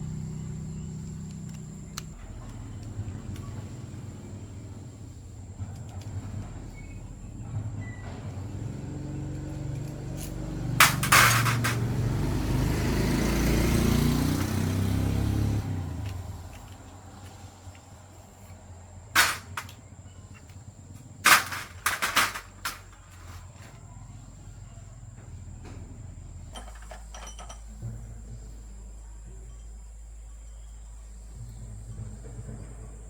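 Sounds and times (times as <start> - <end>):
low engine rumble: 0.0 - 33.0
hard objects knocking and clanking: 10.8 - 12.2, 19.2 - 19.8, 21.2 - 23.2, 26.6 - 28.0.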